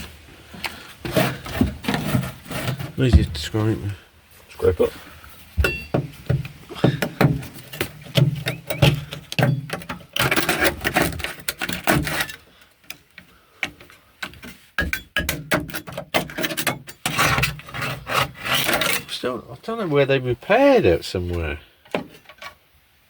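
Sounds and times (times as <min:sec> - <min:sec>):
hand scraper scraping metal floor: 0:01.0 - 0:03.0, 0:07.8 - 0:12.4, 0:15.6 - 0:19.2
knocks: 0:05.6 - 0:10.0.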